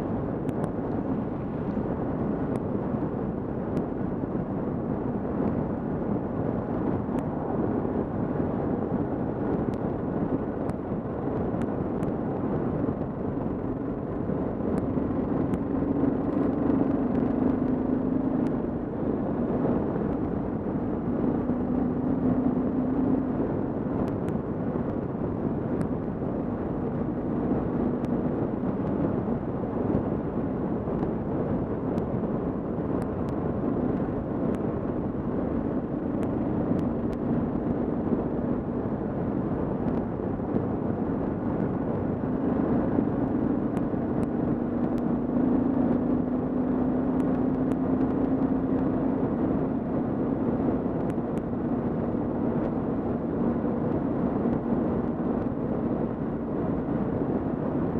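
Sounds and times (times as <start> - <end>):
wind and road noise: 0.0 - 57.9
motorcycle engine cruising: 12.9 - 25.0.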